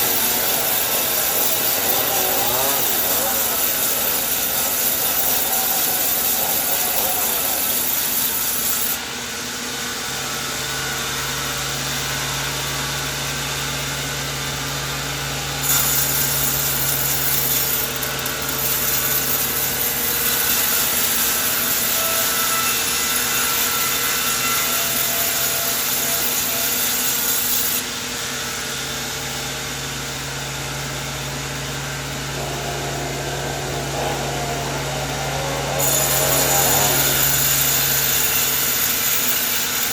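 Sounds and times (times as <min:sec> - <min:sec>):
saw cutting wood: 0:00.0 - 0:09.1, 0:15.6 - 0:27.9, 0:31.3 - 0:39.9
low machine hum: 0:30.0 - 0:39.1.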